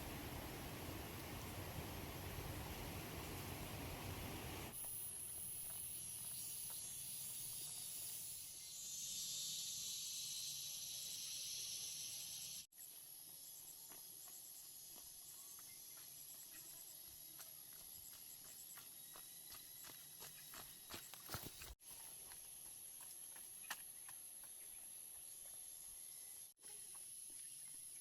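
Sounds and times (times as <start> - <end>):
hiss: 0.0 - 5.2, 7.7 - 12.7
insects droning and chirping: 0.0 - 28.0.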